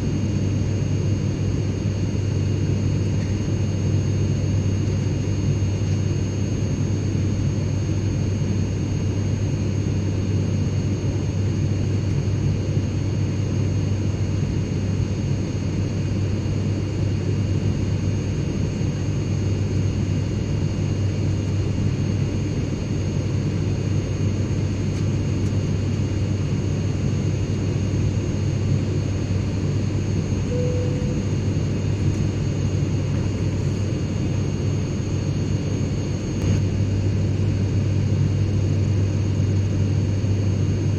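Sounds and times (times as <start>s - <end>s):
airplane cabin rumble: 18.2s - 40.9s
faint high whines: 29.9s - 34.9s.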